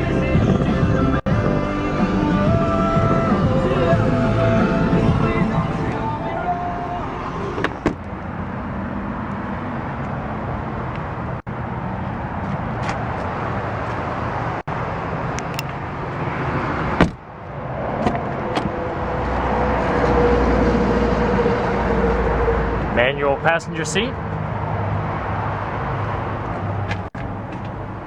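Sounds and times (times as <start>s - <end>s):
outdoor traffic noise: 0.0s - 28.0s
loud thump: 7.6s - 8.0s, 17.0s - 17.2s.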